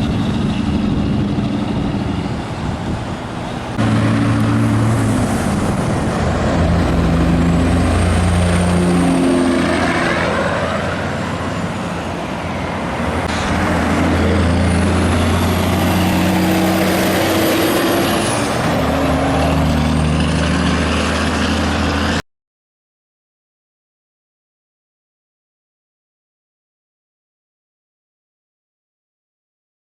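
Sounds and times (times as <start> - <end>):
diesel truck engines running hard: 0.0 - 22.2
high whine: 0.0 - 22.2.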